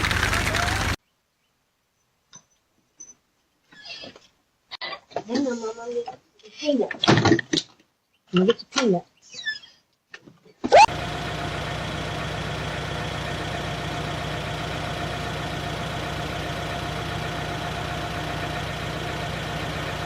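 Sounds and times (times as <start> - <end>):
engine idling: 0.0 - 1.0, 10.8 - 20.0.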